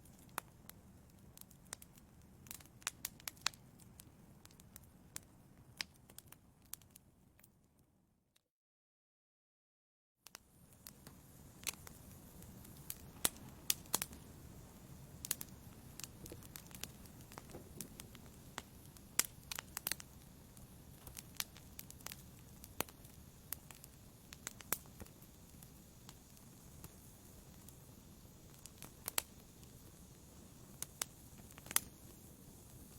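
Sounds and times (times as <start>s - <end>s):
fire crackling and popping: 0.0s - 7.5s, 10.2s - 32.9s
low rush of flame: 10.5s - 32.9s.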